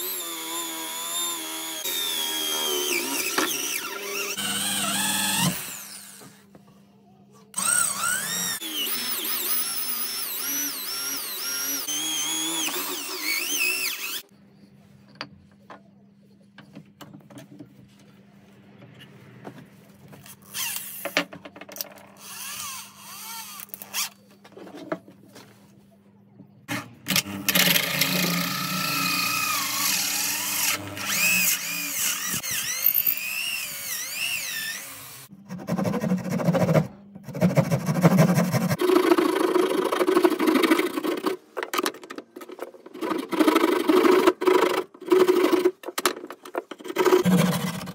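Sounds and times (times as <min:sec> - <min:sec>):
electric drill whining: 0:00.0 - 0:06.4, 0:07.6 - 0:14.3, 0:27.1 - 0:35.3.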